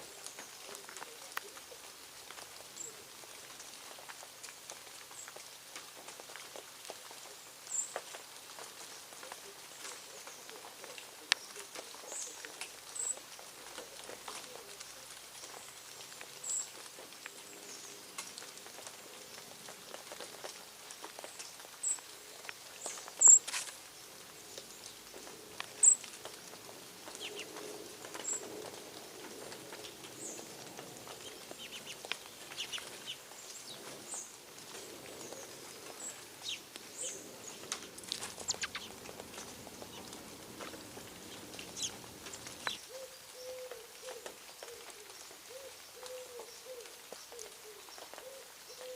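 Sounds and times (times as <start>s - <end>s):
birds chirping: 20.9s - 44.7s
low wavering coo: 42.9s - 48.9s.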